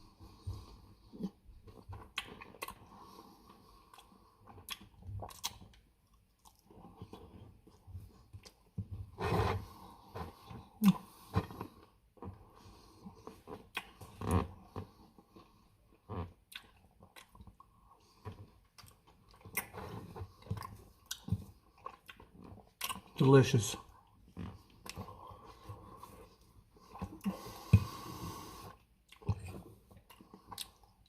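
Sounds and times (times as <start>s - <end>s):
person chewing with lip smacks: 1.1s - 3.0s, 3.8s - 8.9s, 13.1s - 23.2s, 28.7s - 31.0s.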